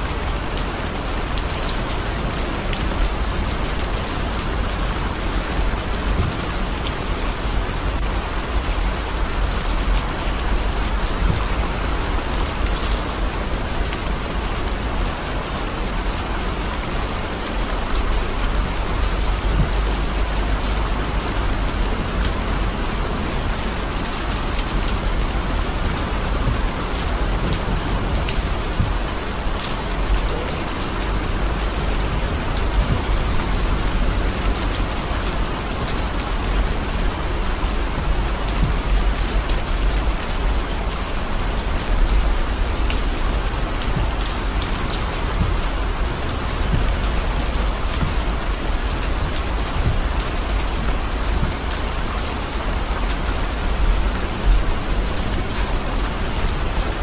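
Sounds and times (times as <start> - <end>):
heavy rain on car roof: 0.0 - 57.0
low rumble of moving car: 0.0 - 57.0.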